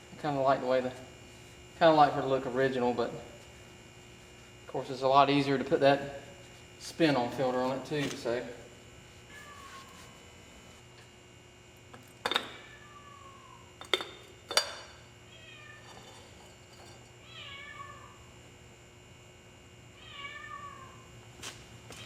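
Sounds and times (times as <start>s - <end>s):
cat meowing: 9.3s - 10.0s, 12.6s - 13.6s, 17.3s - 18.1s, 20.0s - 21.0s.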